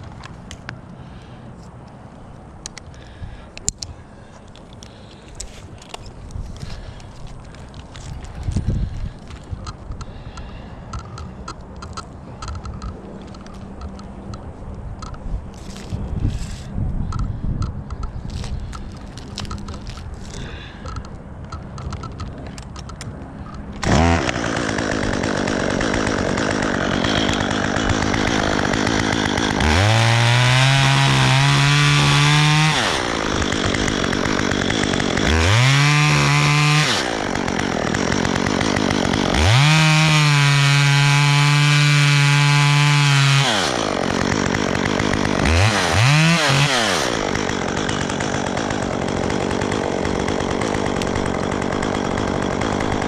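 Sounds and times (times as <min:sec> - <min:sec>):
chainsaw starting and revving: 0:23.8 - 0:53.0.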